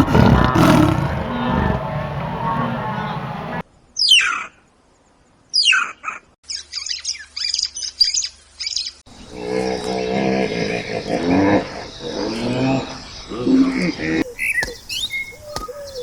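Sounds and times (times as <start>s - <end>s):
animal call: 0.0s - 3.4s.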